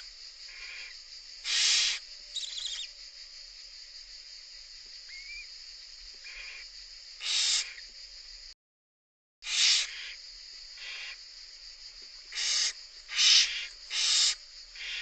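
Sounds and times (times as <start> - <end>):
barn owl hissing calls: 0.0 - 3.0, 5.1 - 5.5, 6.2 - 7.9, 9.4 - 10.2, 10.8 - 11.2, 12.2 - 15.0
high chittering: 1.4 - 3.0.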